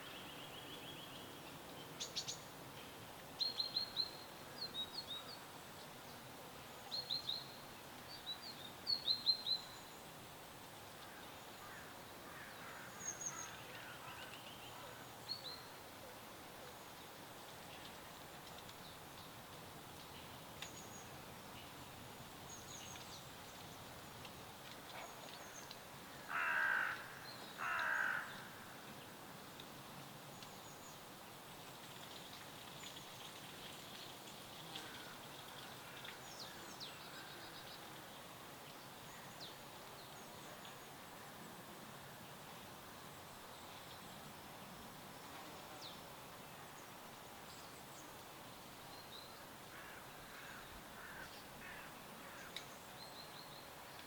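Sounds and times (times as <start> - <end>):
soft steady hiss: 0.0 - 54.0
loud harsh bird calls: 26.2 - 28.6.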